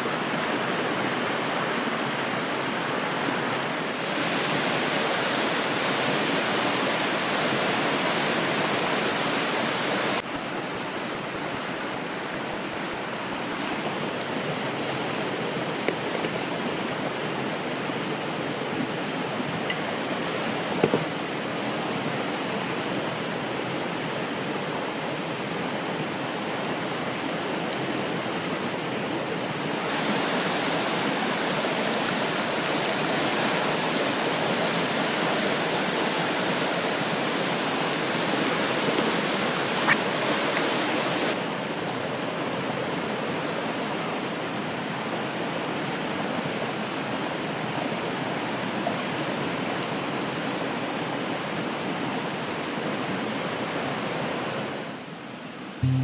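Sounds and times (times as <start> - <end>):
river flowing: 0.0 - 42.2.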